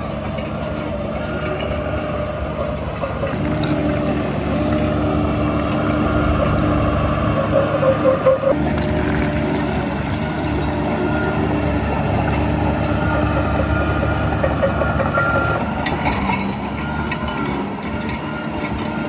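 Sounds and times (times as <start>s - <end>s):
heavy diesel engine under load: 0.0s - 19.0s.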